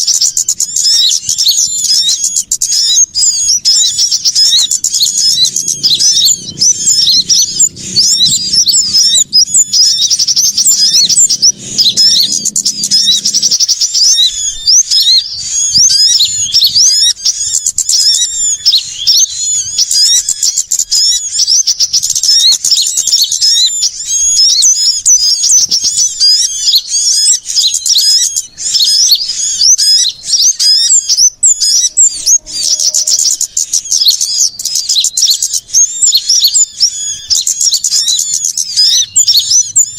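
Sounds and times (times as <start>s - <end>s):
songbirds chirping and trilling: 0.0s - 39.9s
low hum: 4.5s - 17.0s.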